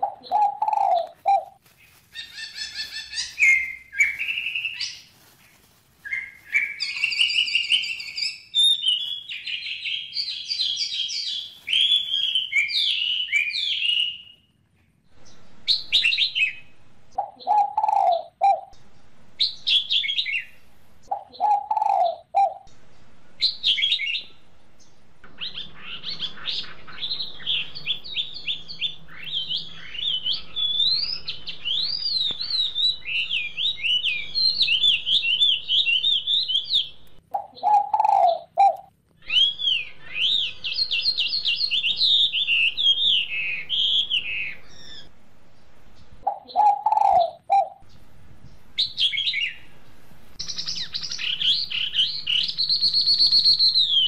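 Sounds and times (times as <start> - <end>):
birds chirping and singing: 0.0 - 5.1, 6.0 - 14.5, 15.1 - 54.0
fast bird twittering: 2.2 - 5.1, 6.1 - 14.2, 25.4 - 45.1, 50.4 - 54.0.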